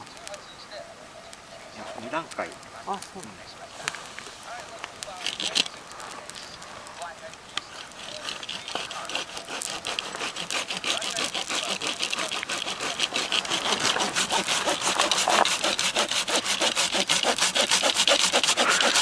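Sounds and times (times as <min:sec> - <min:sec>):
hand saw cutting firewood: 0:05.1 - 0:05.7, 0:07.7 - 0:19.0.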